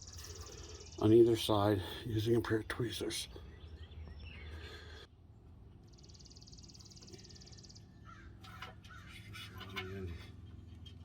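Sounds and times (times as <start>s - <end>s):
crow cawing faintly: 8.0s - 10.3s.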